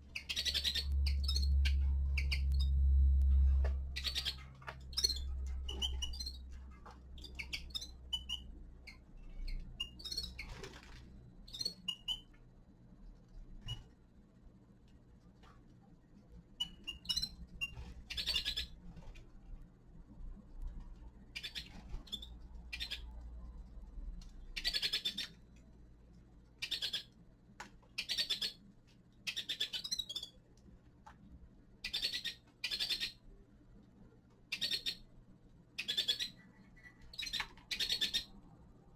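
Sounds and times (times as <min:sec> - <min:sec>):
finches chirping: 0:00.1 - 0:12.3, 0:16.6 - 0:19.0, 0:21.3 - 0:23.2, 0:24.5 - 0:25.4, 0:26.6 - 0:27.1, 0:27.9 - 0:28.6, 0:29.3 - 0:30.4, 0:31.8 - 0:33.2, 0:34.5 - 0:35.0, 0:35.8 - 0:38.4.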